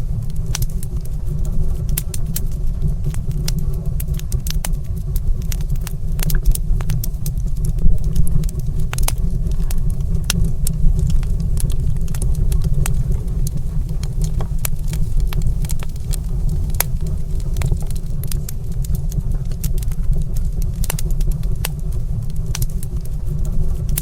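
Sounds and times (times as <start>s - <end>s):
fire crackling: 0.3s - 24.0s.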